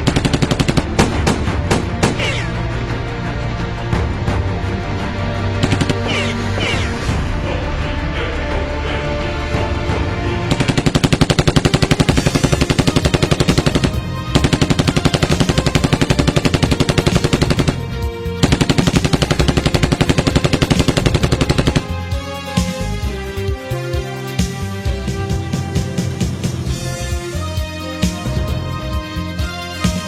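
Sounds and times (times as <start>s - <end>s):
automatic gunfire bursts: 0.0s - 2.5s, 5.6s - 6.3s, 10.5s - 22.0s
background music: 0.0s - 30.0s.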